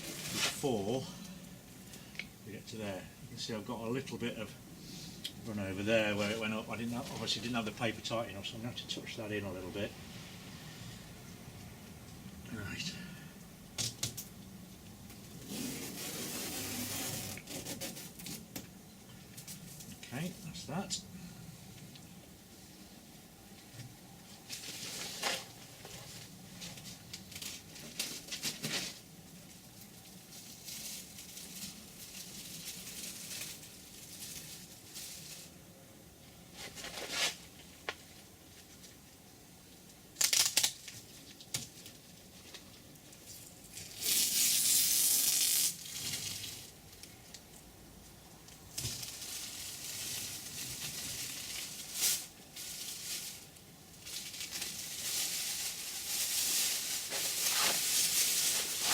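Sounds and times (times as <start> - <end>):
masking tape ripping off: 0.0 - 0.6, 15.4 - 18.6, 40.2 - 41.8, 43.6 - 46.7, 54.1 - 58.9
masking paper crinkling: 24.2 - 35.8, 48.7 - 58.9.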